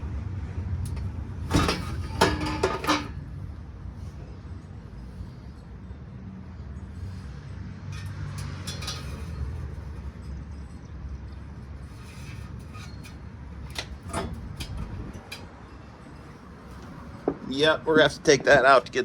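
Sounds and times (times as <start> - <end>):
metal clinks and knocks: 0.9 - 3.4, 7.9 - 17.3
squealing metal scrape: 7.9 - 10.8, 11.8 - 17.1.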